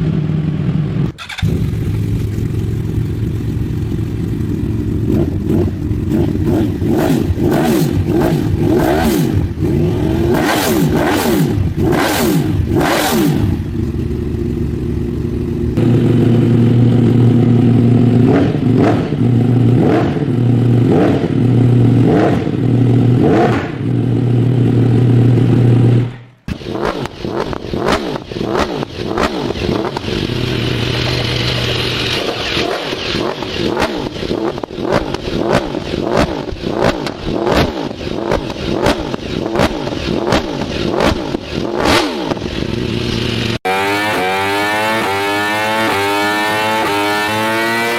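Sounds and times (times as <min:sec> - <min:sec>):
motorcycle engine revving: 0:00.0 - 0:47.9
exhaust pops: 0:26.0 - 0:42.8.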